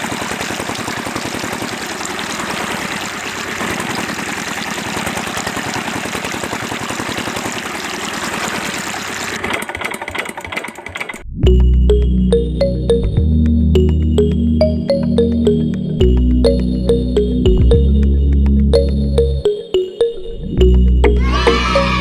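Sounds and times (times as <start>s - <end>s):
small water pump engine running: 0.0s - 11.3s.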